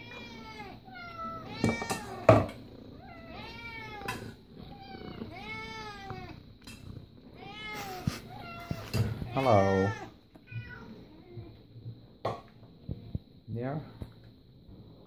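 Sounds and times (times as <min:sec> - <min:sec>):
cat meowing: 0:00.0 - 0:06.4, 0:07.4 - 0:11.5.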